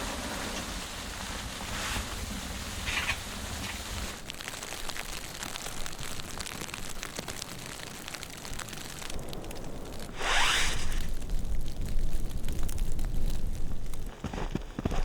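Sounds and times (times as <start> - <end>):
snow pattering on tent fabric: 0.0 - 15.0.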